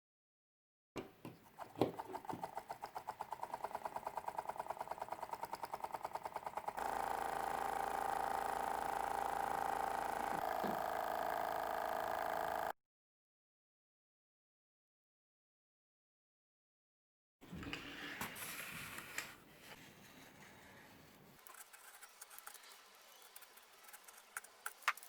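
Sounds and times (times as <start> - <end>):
small electric motor ticking: 2.0 - 12.8
motor whine: 6.4 - 12.8.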